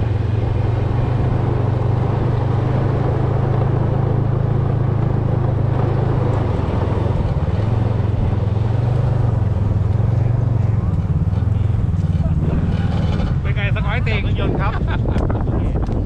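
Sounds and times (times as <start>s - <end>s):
snowmobile engine running: 0.0s - 16.0s.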